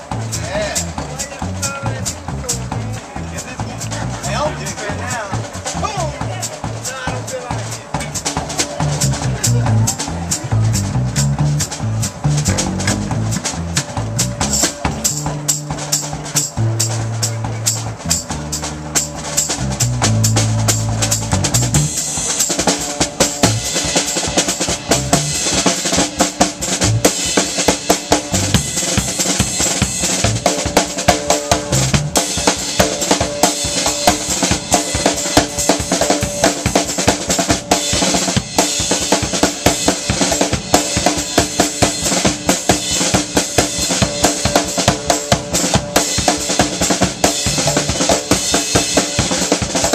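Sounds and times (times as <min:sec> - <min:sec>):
low bass notes: 0:00.0 - 0:23.9, 0:24.7 - 0:27.2, 0:28.0 - 0:36.8
drums beating: 0:00.0 - 0:49.9
live band music: 0:00.0 - 0:49.9.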